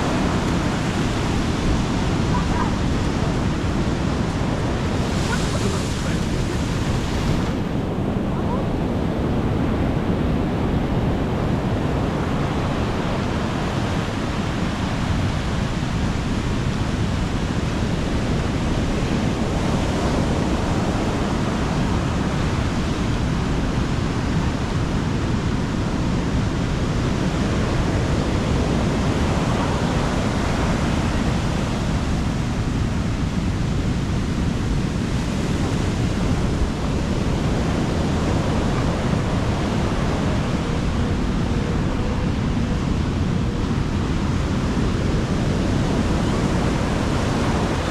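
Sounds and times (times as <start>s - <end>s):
sea waves on beach: 0.0s - 9.4s, 26.7s - 47.9s.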